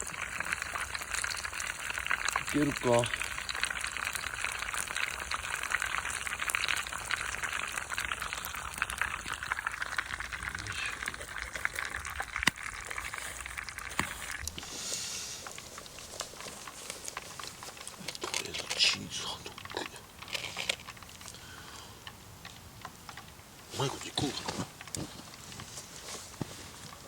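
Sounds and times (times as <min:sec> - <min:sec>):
hot oil sizzling: 0:00.0 - 0:18.6.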